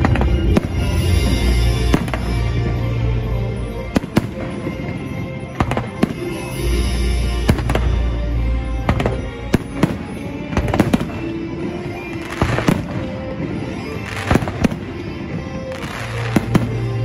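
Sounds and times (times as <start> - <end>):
fireworks crackling: 0.0 - 17.0
music playing: 0.0 - 17.0.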